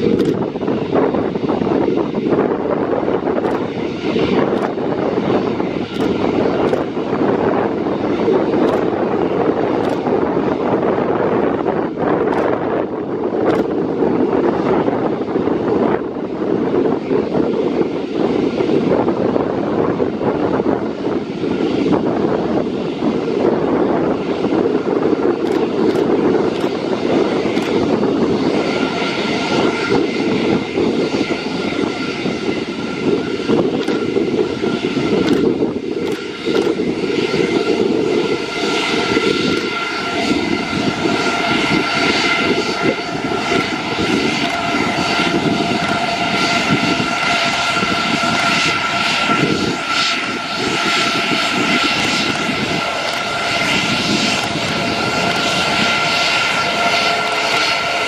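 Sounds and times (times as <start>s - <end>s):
aircraft engine running: 0.0s - 58.0s
steady whine: 18.9s - 58.0s.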